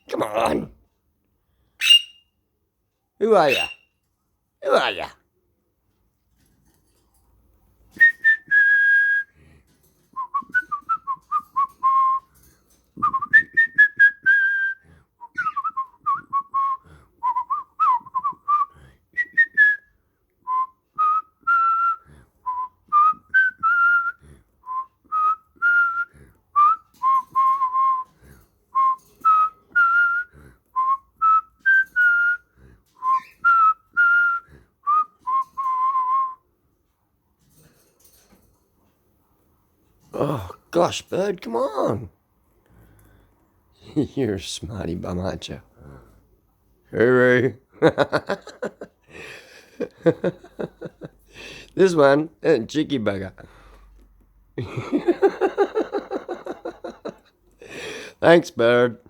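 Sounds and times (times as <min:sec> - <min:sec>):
person whistling a tune: 0:08.0 - 0:09.3, 0:13.0 - 0:19.9, 0:33.0 - 0:36.4.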